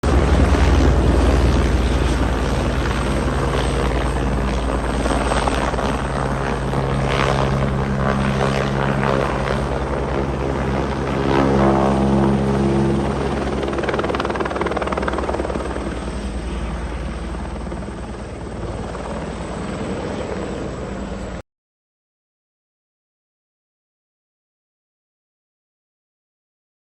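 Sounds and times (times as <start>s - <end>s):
helicopter rotor and engine: 0.0s - 21.4s.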